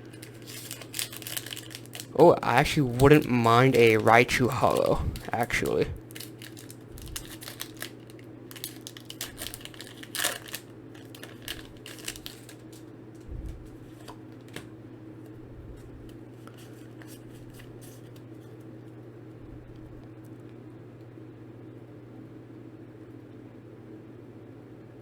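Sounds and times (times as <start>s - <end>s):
cards being handled: 0.0s - 8.0s, 8.6s - 14.7s, 15.7s - 18.6s
foil wrapper crinkling and tearing: 0.0s - 12.8s.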